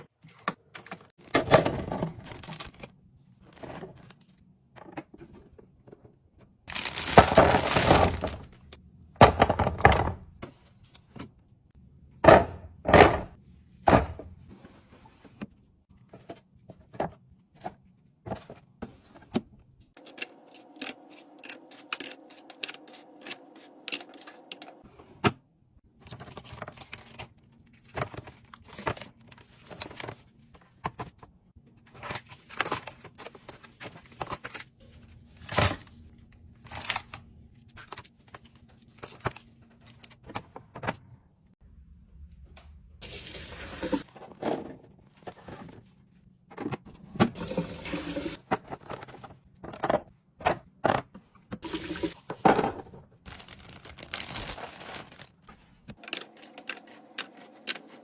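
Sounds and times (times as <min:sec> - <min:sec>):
packaging rustling: 0:06.7 - 0:08.5, 0:53.2 - 0:56.5.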